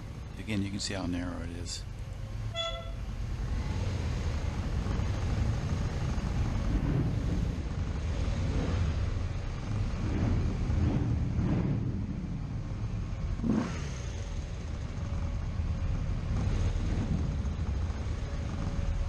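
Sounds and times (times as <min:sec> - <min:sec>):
motorcycle engine running: 0:01.8 - 0:19.0
brief high tone: 0:02.5 - 0:03.0.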